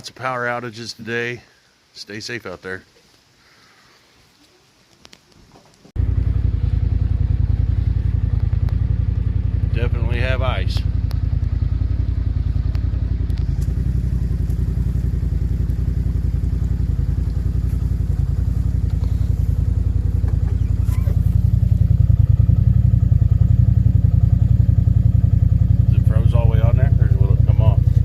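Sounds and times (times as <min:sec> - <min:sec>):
vehicle engine droning: 0:06.0 - 0:28.0.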